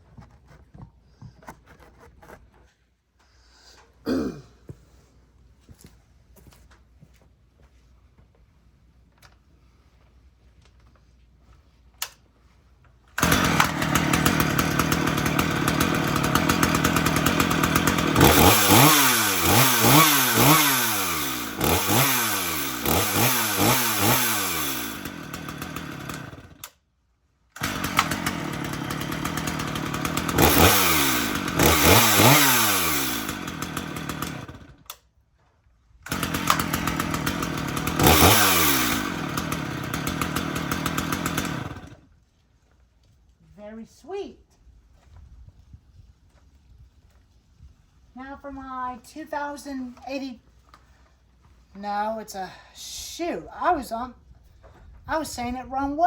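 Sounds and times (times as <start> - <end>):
chainsaw idling and revving: 13.2 - 26.8, 27.6 - 34.9, 36.1 - 42.1.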